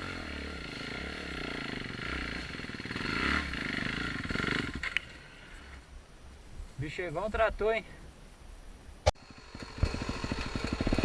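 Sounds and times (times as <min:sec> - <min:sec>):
dirt bike engine: 0:00.0 - 0:05.8, 0:09.1 - 0:11.0.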